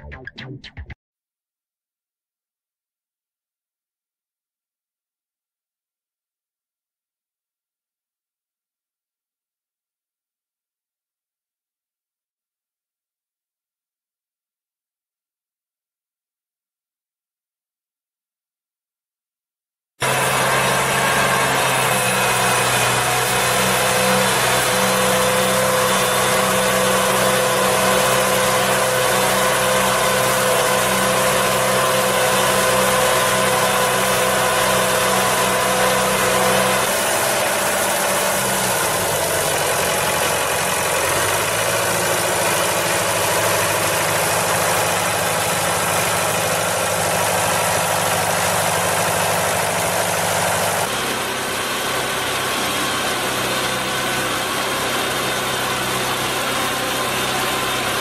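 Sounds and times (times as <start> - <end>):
heavy farm machinery engines: 20.0 - 58.0.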